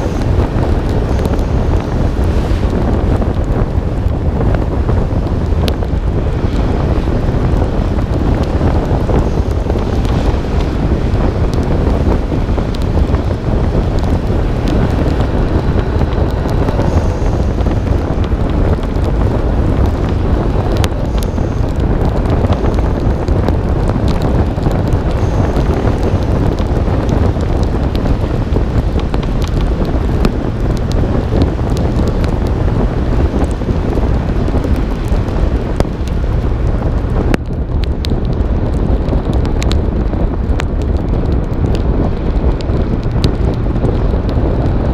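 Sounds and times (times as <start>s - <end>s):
car driving noise: 0.0s - 44.9s
raindrops clicking on camera: 0.0s - 44.9s
wind buffeting microphone: 0.0s - 44.9s.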